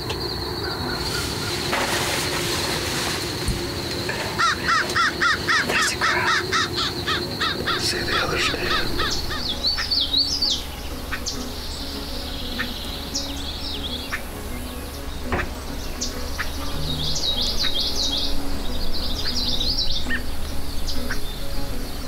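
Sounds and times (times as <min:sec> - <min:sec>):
birds calling: 0:00.0 - 0:22.0
high insect hum: 0:00.0 - 0:22.0
crow cawing: 0:04.3 - 0:10.0.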